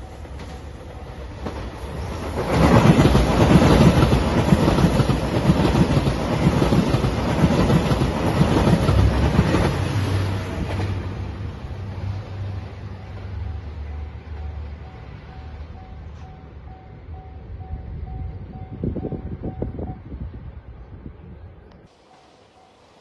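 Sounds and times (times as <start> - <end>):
diesel train passing: 0.0 - 23.0.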